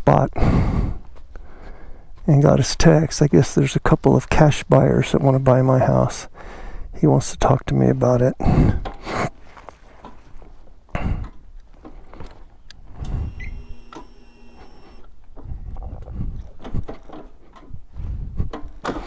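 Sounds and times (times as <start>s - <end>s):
steady buzzing tone: 13.0s - 15.0s.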